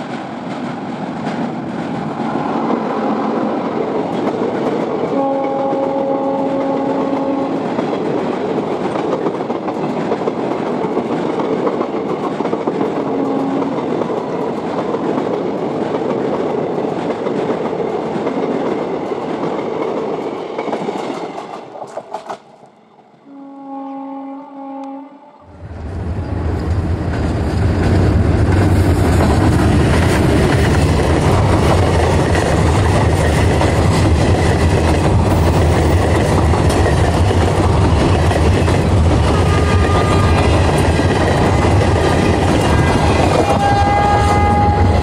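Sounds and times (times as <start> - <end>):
train rumbling over rail bridge: 0.0 - 45.0
train horn blasts: 5.1 - 7.6, 13.1 - 13.8, 23.2 - 25.6, 39.2 - 40.6, 42.6 - 45.0.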